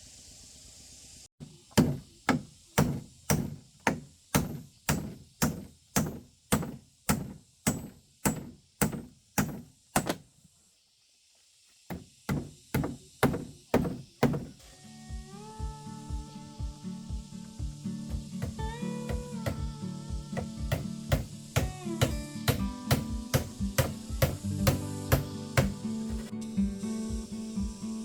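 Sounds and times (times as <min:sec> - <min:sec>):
heavy knocks: 0:01.7 - 0:10.2, 0:11.9 - 0:14.6, 0:17.6 - 0:26.3.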